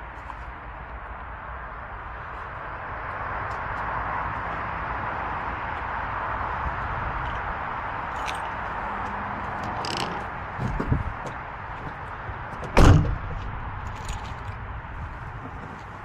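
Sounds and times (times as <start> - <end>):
car door slamming: 12.6 - 13.5.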